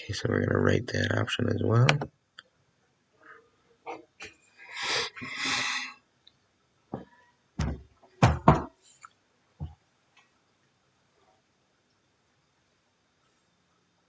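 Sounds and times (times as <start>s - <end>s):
dull knocks and thumps: 6.9s - 8.7s.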